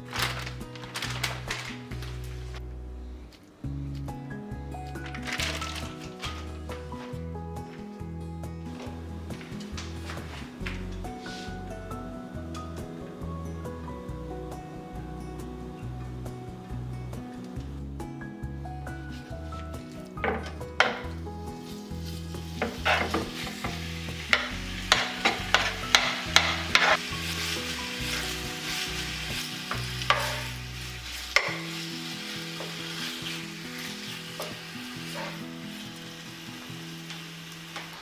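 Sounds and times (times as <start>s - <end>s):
food sizzling in a pan: 19.0s - 38.0s
utensil knocking and scraping pan: 20.2s - 21.2s, 22.3s - 31.8s, 34.3s - 35.4s.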